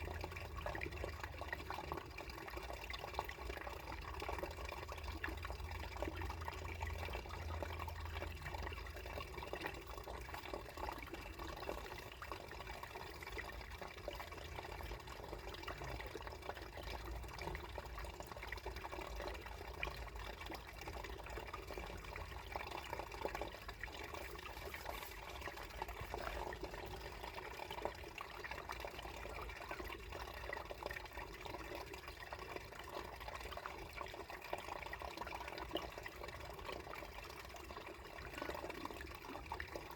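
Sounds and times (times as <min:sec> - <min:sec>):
water running beneath ice: 0:00.0 - 0:39.9
water dripping and splashing: 0:17.0 - 0:29.0.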